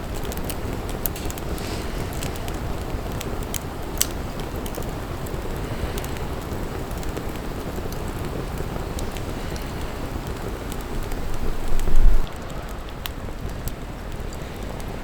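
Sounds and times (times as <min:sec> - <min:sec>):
wood fire crackling and popping: 0:00.0 - 0:15.0
low steady rumble: 0:10.8 - 0:14.5.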